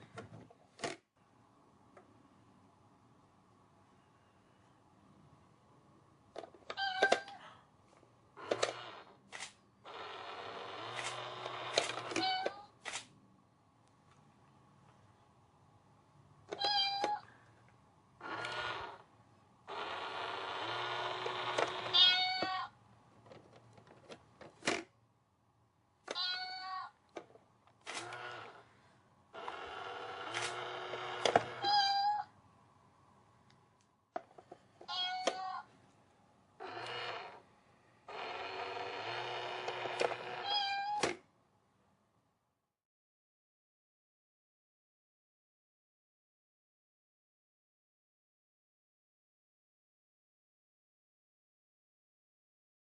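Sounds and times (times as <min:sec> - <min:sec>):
cat meowing: 0:21.9 - 0:22.7, 0:26.1 - 0:26.9, 0:31.6 - 0:32.3, 0:34.9 - 0:35.7, 0:40.4 - 0:41.0.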